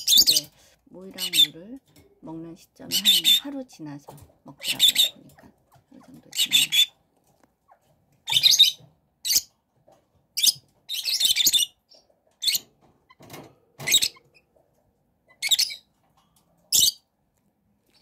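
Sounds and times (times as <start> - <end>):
young chicken chirping: 7.7 - 9.5.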